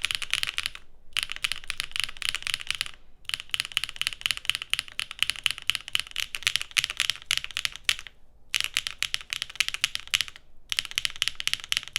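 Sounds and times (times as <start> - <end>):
fast mechanical keyboard typing: 0.0 - 11.9.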